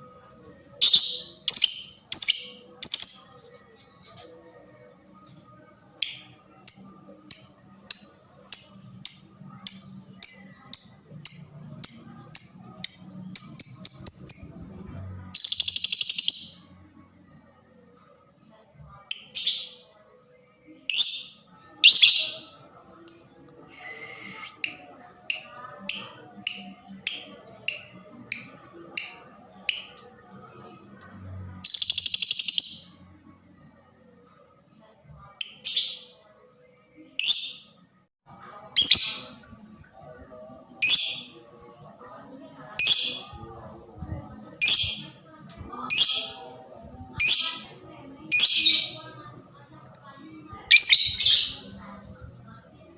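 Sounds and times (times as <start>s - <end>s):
lovebird high piercing chirps: 0.8s - 3.4s, 6.0s - 14.6s, 20.9s - 22.4s, 50.7s - 51.7s.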